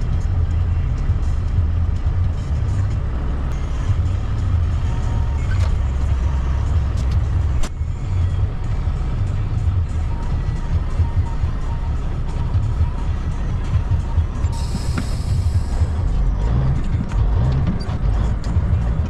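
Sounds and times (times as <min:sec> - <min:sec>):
road noise: 0:00.0 - 0:19.0
truck engine rumble: 0:00.0 - 0:19.0.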